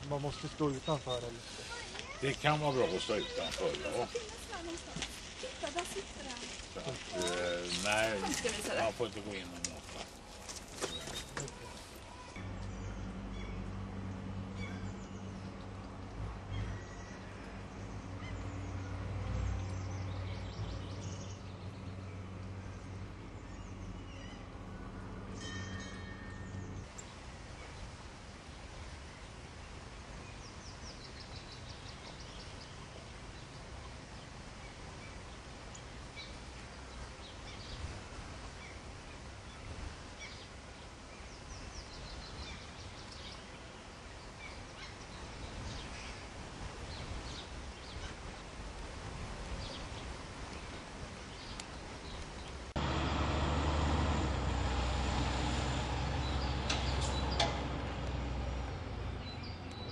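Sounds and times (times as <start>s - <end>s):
small birds chirping: 0.0s - 52.8s, 56.1s - 59.9s.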